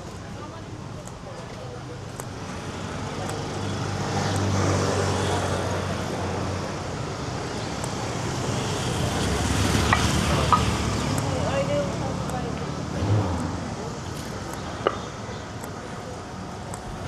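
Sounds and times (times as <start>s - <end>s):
traffic hum: 0.0s - 17.0s
vehicle passing close: 8.1s - 14.5s.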